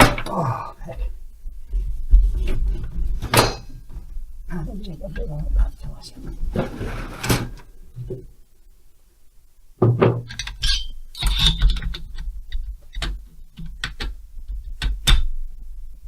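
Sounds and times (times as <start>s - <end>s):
low hum: 0.0s - 9.7s.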